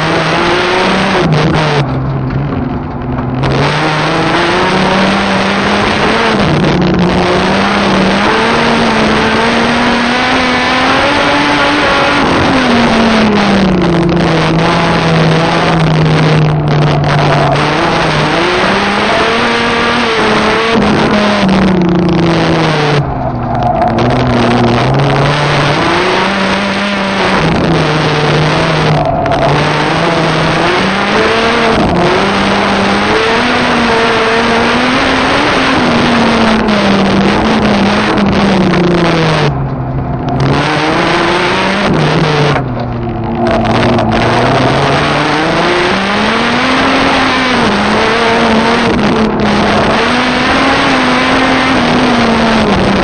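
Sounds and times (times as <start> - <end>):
car engine revving from inside: 3.3 - 53.0.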